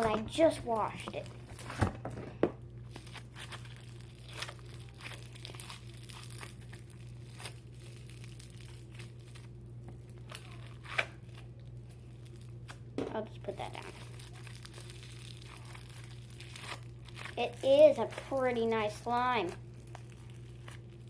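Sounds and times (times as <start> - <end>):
steady low hum: 0.0 - 21.0
slime crackling and tearing: 2.9 - 12.8, 13.5 - 21.0.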